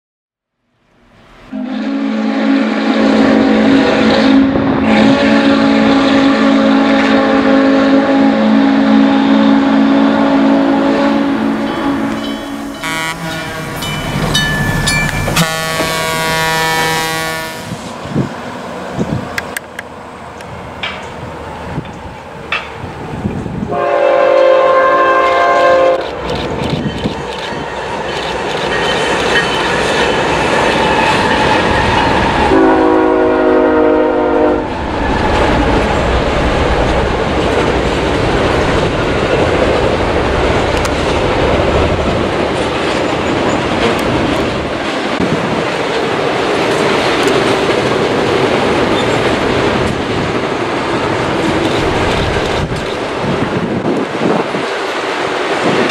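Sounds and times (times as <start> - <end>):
locomotive horn blasts: 1.5 - 17.9, 23.7 - 26.1, 32.5 - 34.7.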